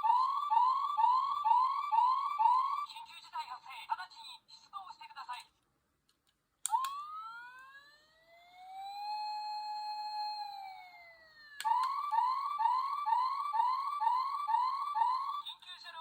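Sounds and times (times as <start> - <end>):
toy electronic siren: 0.0 - 2.9, 6.7 - 15.5.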